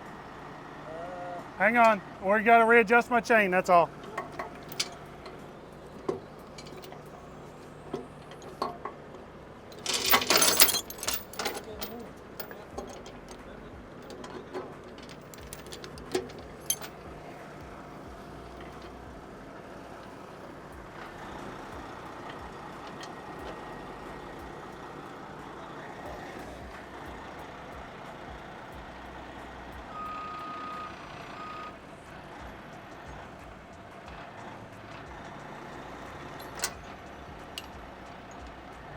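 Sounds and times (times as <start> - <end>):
diesel engine running: 0.0 - 38.9
metal clanking: 4.1 - 17.3, 36.4 - 38.5.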